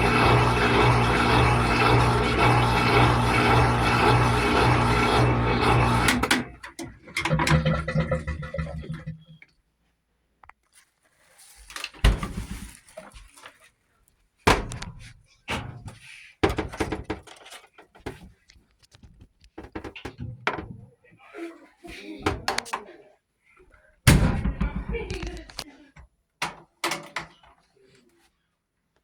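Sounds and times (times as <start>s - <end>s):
appliance doors knocking and thunking: 24.1s - 25.4s.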